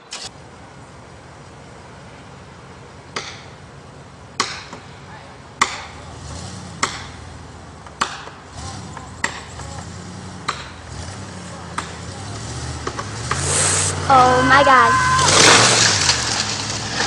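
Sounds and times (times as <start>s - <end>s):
low engine hum: 0.0s - 17.0s
axe chopping wood: 3.2s - 3.5s, 4.4s - 4.9s, 5.6s - 5.9s, 6.8s - 7.2s, 7.9s - 8.4s, 9.2s - 9.5s, 10.5s - 10.8s.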